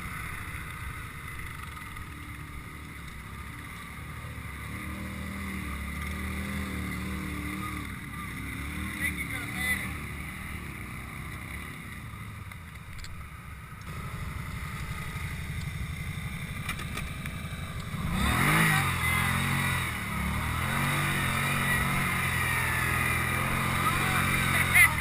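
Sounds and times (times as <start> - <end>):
atv engine revving: 0.0 - 25.0.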